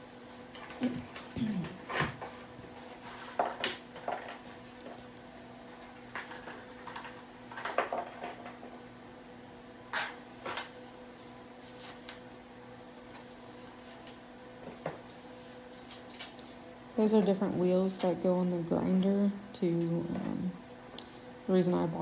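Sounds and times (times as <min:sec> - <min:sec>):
items and packaging clinking: 0:00.4 - 0:09.0, 0:09.9 - 0:12.4, 0:13.0 - 0:19.0.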